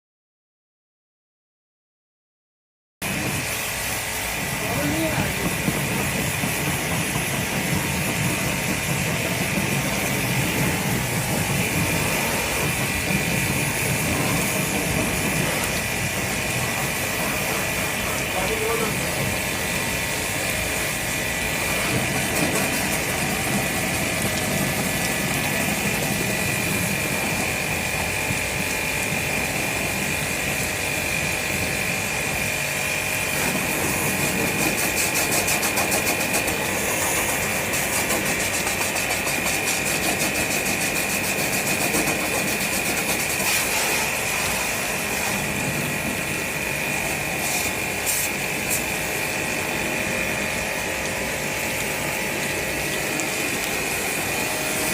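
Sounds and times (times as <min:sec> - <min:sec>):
machine high-pitched whine: 0:03.0 - 0:54.9
machine hissing: 0:03.0 - 0:54.9.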